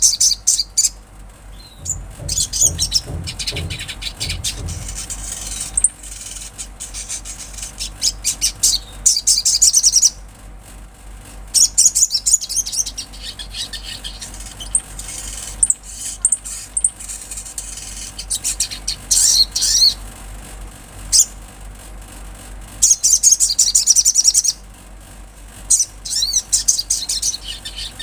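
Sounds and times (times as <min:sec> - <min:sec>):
bird singing high chirps: 0:01.5 - 0:10.1.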